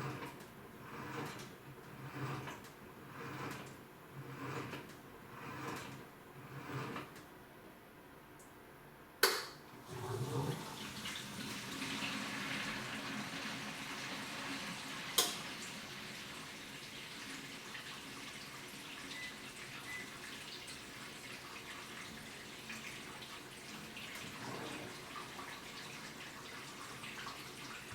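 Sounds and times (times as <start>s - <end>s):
sharp click: 9.2s - 9.6s
water running: 9.7s - 27.9s.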